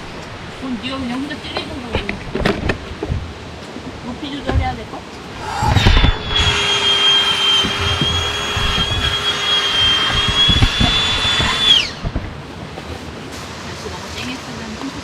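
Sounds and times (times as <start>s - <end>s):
small electric fan motor whining: 5.4s - 12.3s.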